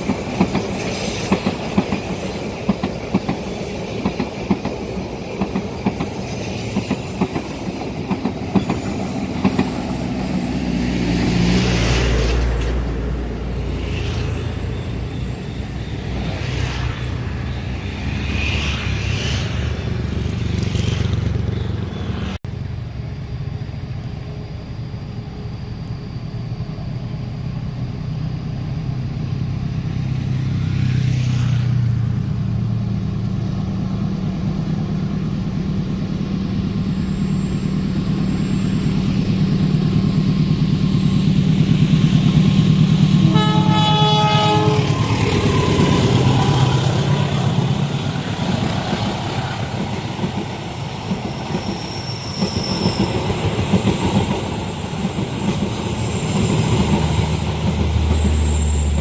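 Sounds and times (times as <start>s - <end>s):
train horn: 43.2s - 46.5s.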